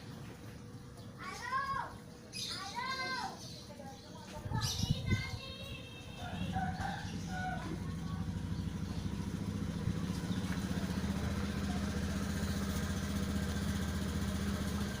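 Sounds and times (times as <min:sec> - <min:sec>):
small engine idling: 0:06.0 - 0:15.0.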